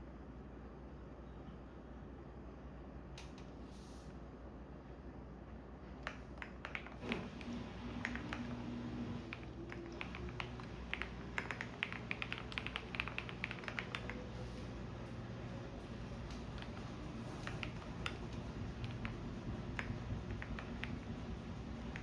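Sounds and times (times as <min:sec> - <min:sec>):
washing machine humming: 0:00.0 - 0:22.0
computer keyboard typing: 0:06.0 - 0:14.7, 0:15.6 - 0:22.0.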